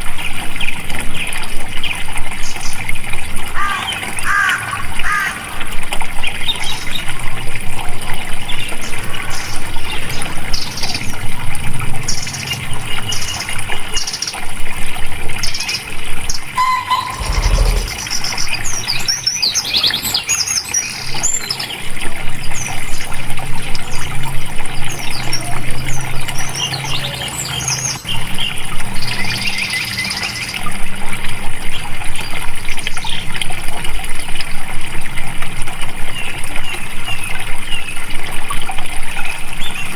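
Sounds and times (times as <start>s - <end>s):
running water: 0.0s - 39.9s
songbirds chirping and trilling: 23.8s - 30.7s.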